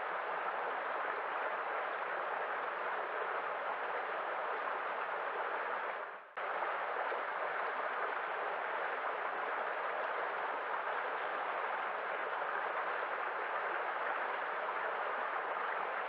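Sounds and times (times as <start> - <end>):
running water rushing: 0.0 - 16.0.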